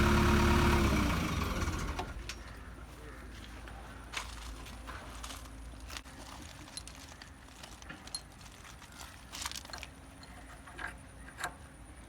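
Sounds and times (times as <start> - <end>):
low engine rumble: 0.0 - 8.1
metal tools clinking: 5.2 - 11.0.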